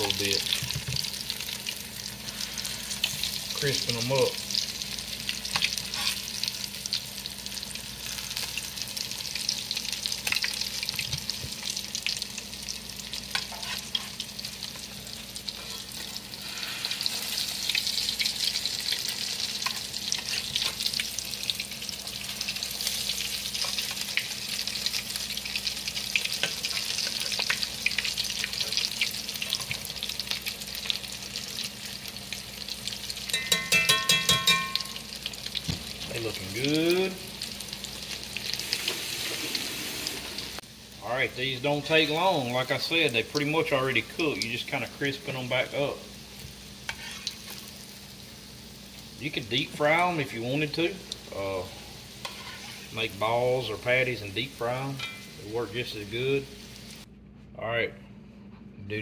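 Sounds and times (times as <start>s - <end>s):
patties sizzling in oil: 0.0s - 57.1s
metal spatula scraping a pan: 5.6s - 6.3s, 13.3s - 14.2s, 15.5s - 17.4s, 46.9s - 47.5s, 52.2s - 53.0s.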